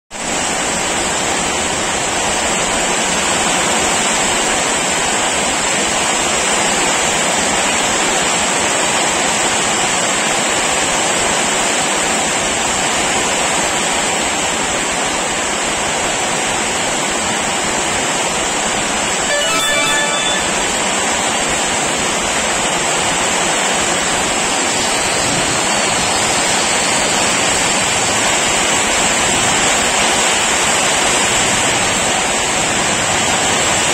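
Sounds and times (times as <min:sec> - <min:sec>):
heavy rain pouring: 0:00.2 - 0:33.9
brief high tone: 0:19.3 - 0:21.6.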